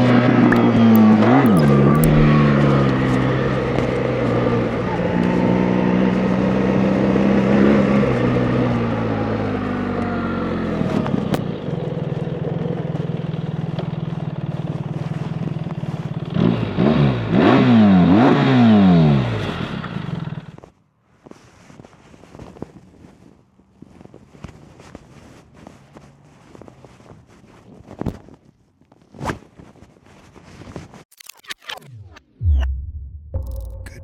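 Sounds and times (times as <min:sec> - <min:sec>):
motorcycle engine revving: 0:00.0 - 0:20.6.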